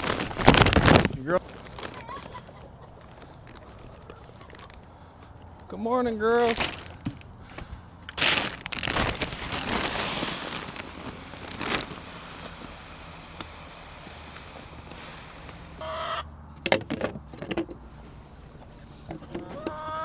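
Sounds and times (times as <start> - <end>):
hens clucking and calling: 15.6 - 16.4, 17.8 - 20.0.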